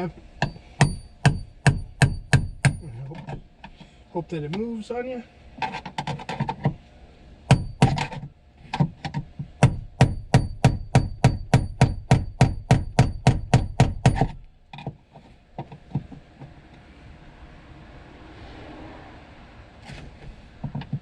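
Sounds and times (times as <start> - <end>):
hammer striking metal with high ring: 0.4 - 2.8, 7.5 - 7.9, 9.7 - 14.3.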